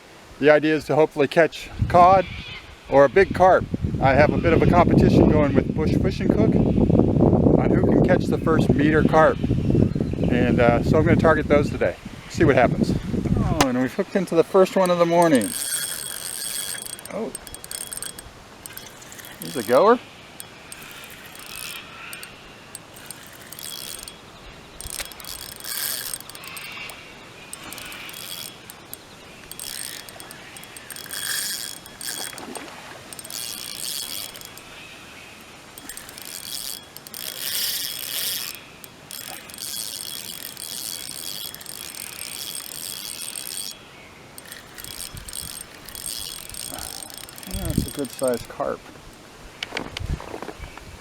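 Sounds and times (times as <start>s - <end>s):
fishing reel ratcheting: 14.4s - 49.2s.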